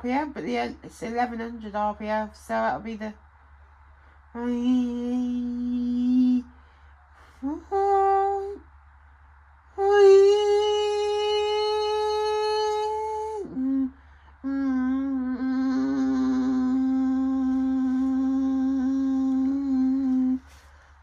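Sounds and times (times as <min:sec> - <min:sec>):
person humming: 0:04.4 - 0:06.5, 0:07.4 - 0:08.6, 0:09.8 - 0:20.6.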